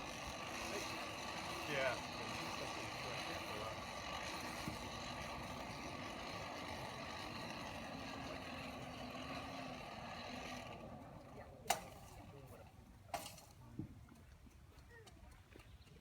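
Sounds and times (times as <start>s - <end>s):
motor droning: 0.0s - 12.7s.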